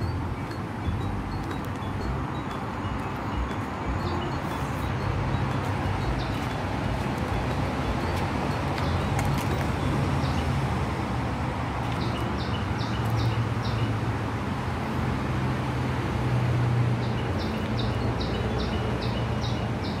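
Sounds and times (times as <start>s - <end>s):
distant traffic rumble: 0.0s - 20.0s.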